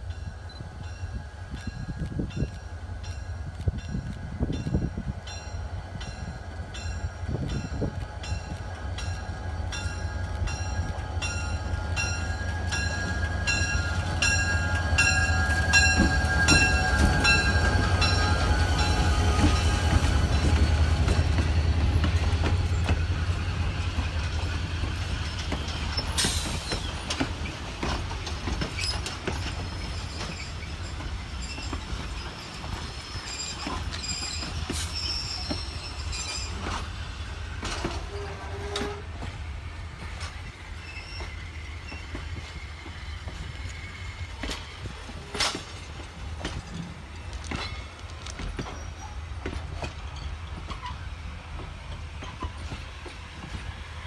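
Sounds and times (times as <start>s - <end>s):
locomotive bell ringing: 0.0s - 22.9s
wheels clicking over rail joints: 1.5s - 37.0s, 37.6s - 39.4s, 40.0s - 54.0s
wheel squeal: 28.6s - 36.9s, 40.7s - 45.6s
locomotive horn: 37.8s - 39.3s.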